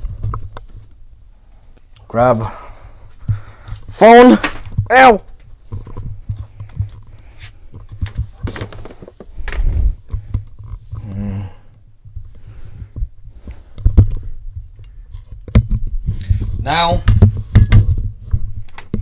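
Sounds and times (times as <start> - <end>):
objects knocking and clicking: 13.8 - 19.0.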